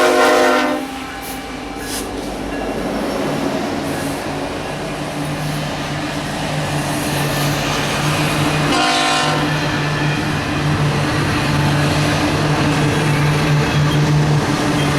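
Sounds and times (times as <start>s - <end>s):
train horn blast: 0.0s - 2.0s, 8.7s - 9.8s.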